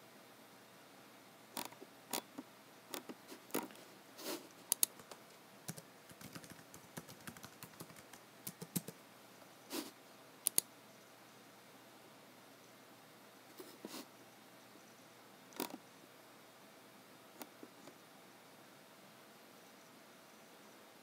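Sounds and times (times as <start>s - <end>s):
computer keyboard typing: 4.7s - 9.0s.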